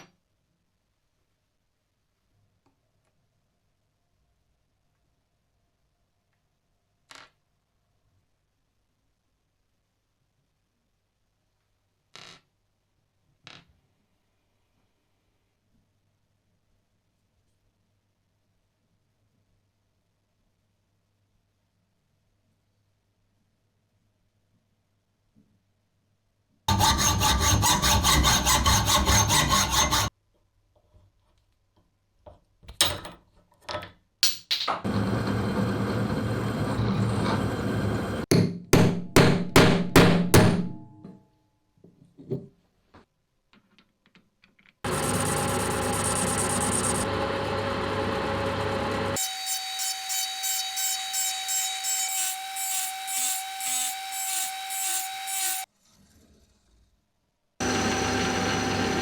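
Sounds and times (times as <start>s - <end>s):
rasping strokes on wood: 26.7s - 30.1s, 44.9s - 47.0s
woodworking machine running: 34.9s - 38.2s, 44.9s - 49.8s, 57.6s - 59.0s
machine whine: 44.9s - 49.2s, 57.6s - 59.0s.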